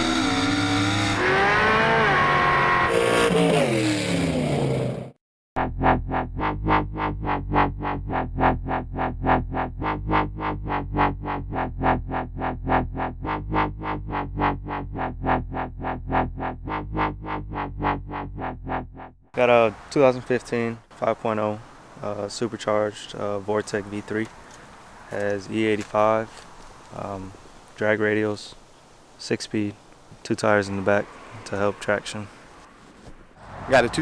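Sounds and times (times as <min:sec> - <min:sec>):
racing engine revving: 0:00.0 - 0:05.1
electronic music with pulsing beat: 0:05.6 - 0:19.1.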